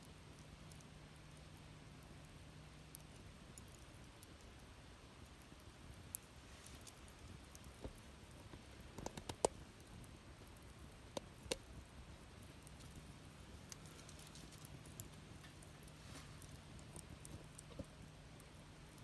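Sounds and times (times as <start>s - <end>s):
wood fire crackling: 0.0s - 19.0s
sharp pops of fire: 5.6s - 18.0s.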